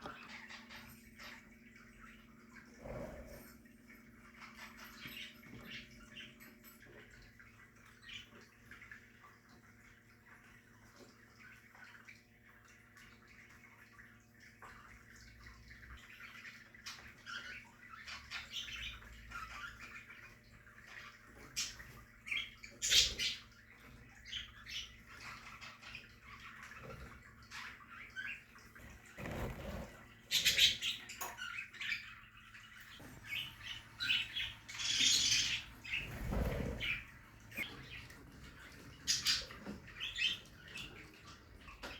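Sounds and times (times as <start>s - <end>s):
budgerigars chirping and chattering: 16.0s - 41.9s.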